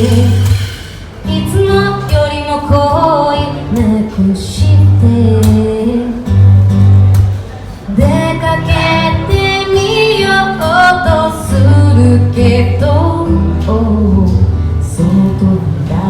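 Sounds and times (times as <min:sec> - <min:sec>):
person singing: 0:00.0 - 0:06.2
acoustic guitar strumming: 0:00.0 - 0:16.0.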